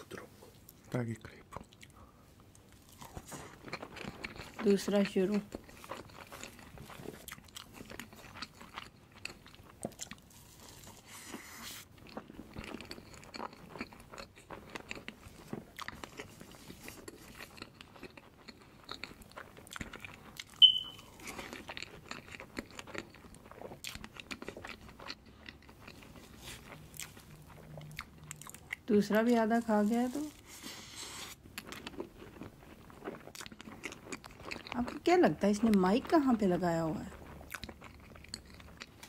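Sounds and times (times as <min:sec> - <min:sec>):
man chewing and swallowing: 0:00.0 - 0:04.6, 0:05.5 - 0:28.9, 0:30.3 - 0:34.8, 0:37.1 - 0:39.0
sharp high squeak: 0:20.6 - 0:21.1.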